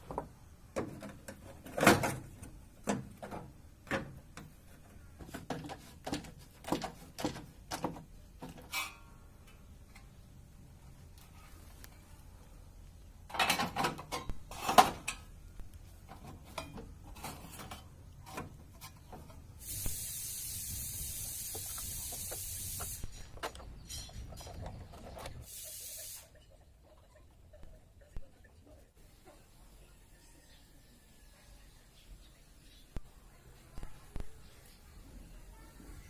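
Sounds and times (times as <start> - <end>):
spray hissing: 19.6 - 23.2, 25.4 - 26.4
knocks and clatters: 21.5 - 25.4.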